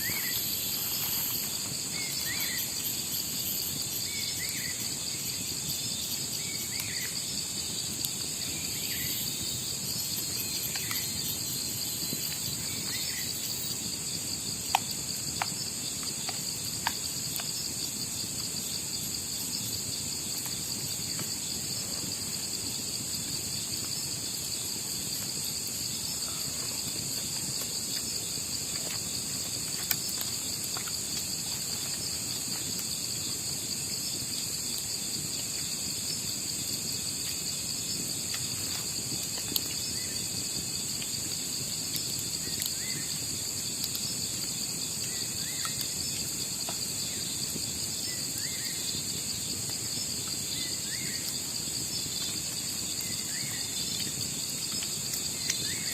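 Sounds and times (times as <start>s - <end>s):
crickets trilling: 0.0s - 55.9s.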